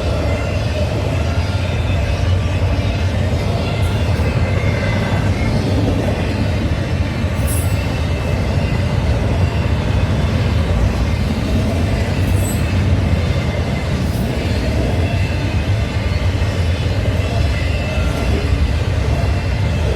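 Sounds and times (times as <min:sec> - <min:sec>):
freight train wheels rumbling: 0:00.0 - 0:19.9
high-pitched wheel squeals: 0:07.3 - 0:15.4.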